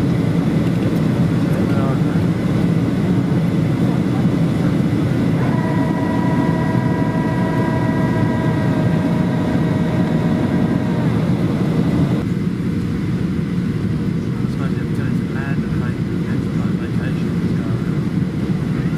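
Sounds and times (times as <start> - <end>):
jet engine and airflow rumble: 0.0 - 18.9
multi-tone whine: 4.2 - 12.3.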